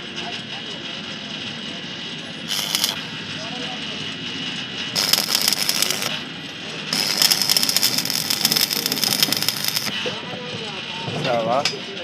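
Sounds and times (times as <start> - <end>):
arc welding crackling sizzle: 2.5 - 3.0, 5.0 - 6.2, 6.9 - 10.0.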